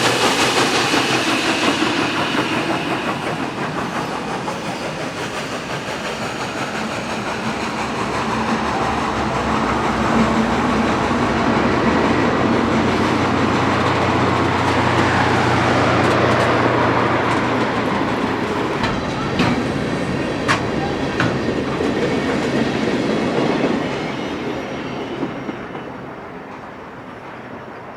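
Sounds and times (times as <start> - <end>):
train rumbling on rails: 0.0 - 27.9.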